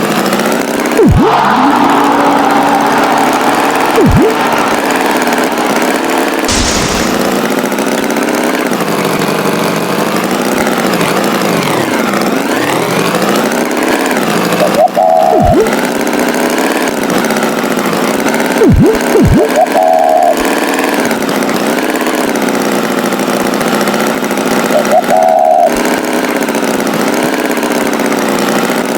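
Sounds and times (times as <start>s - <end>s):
cartoon tractor engine: 0.0s - 28.9s
falling sweep effects: 3.7s - 5.5s.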